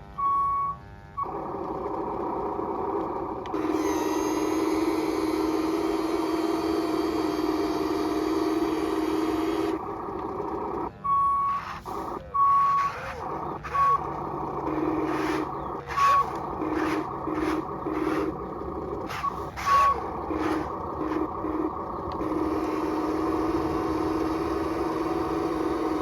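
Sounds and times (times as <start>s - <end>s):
short electronic beeps: 0.2s - 0.8s, 10.9s - 18.3s
bursts of noise: 1.2s - 26.0s
toy electric motor whining: 1.2s - 26.0s.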